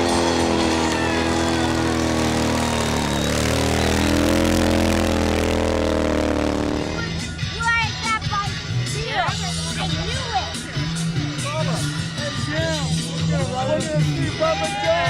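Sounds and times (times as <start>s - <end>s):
motorcycle engine revving: 0.0s - 14.3s.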